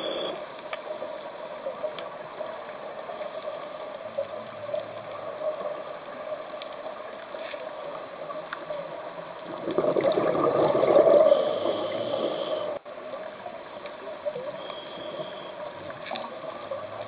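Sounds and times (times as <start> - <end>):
faint clicks: 0.0 - 17.0
underwater hiss: 10.0 - 12.8, 14.4 - 16.1.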